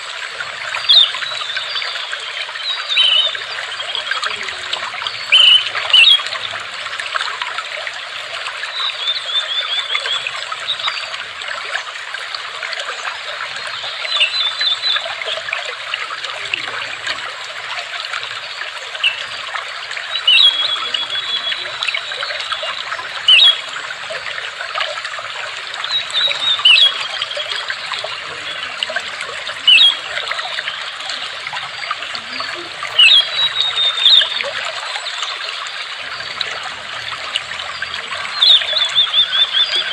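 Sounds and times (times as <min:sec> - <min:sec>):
water trickling: 0:00.0 - 0:39.9
bird chirping and trilling: 0:02.6 - 0:03.6, 0:05.1 - 0:06.2, 0:20.1 - 0:23.6, 0:25.8 - 0:35.3, 0:36.0 - 0:39.9.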